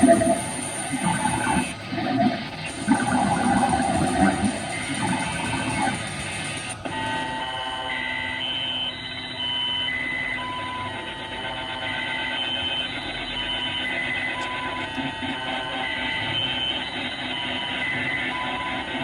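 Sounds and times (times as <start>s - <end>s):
electronic beeping tones: 0.0s - 11.1s
steady noisy hum: 0.0s - 19.0s.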